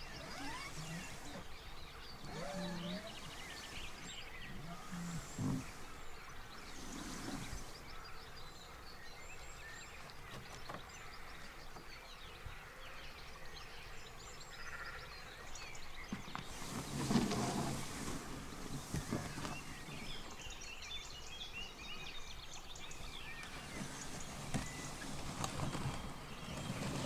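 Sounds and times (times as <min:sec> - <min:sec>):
rustle: 0:00.0 - 0:27.0
small birds chirping and singing: 0:00.0 - 0:27.0.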